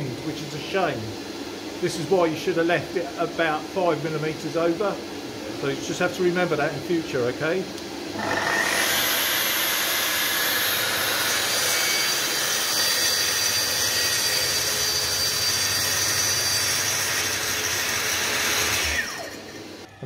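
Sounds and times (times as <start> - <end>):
track saw cutting: 8.1 - 20.0.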